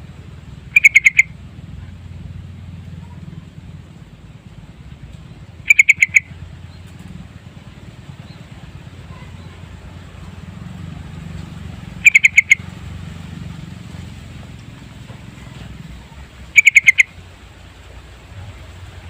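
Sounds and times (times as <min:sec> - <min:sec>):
steady low hum: 0:00.0 - 0:19.0
bird calling quick loud notes: 0:00.7 - 0:01.3, 0:05.6 - 0:06.4, 0:12.0 - 0:12.6, 0:16.6 - 0:17.1.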